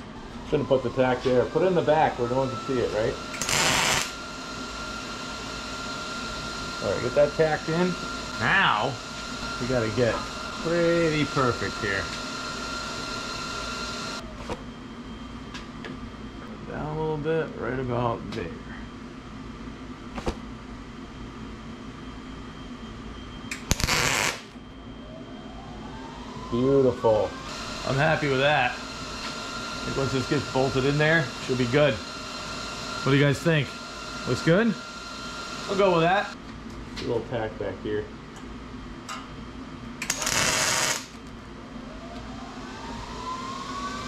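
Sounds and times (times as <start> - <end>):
shop hum: 0.0 - 44.0
welding arc hiss: 2.7 - 4.2, 23.5 - 24.6, 40.0 - 41.2
welding arc click: 3.4 - 4.2, 23.5 - 24.4, 40.0 - 41.2.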